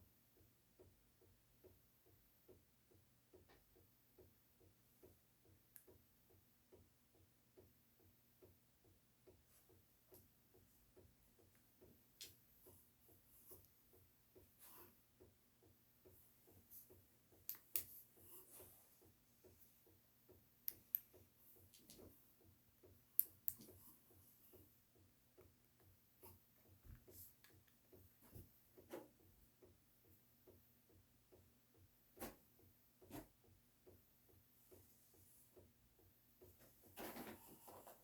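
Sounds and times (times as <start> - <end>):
faint regular ticking: 0.4 - 28.2.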